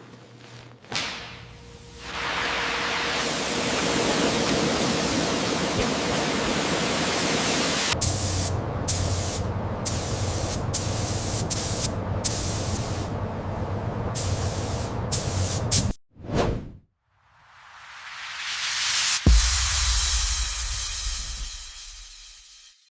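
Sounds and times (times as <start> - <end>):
spray gun hissing: 2.0 - 13.1, 14.2 - 15.9.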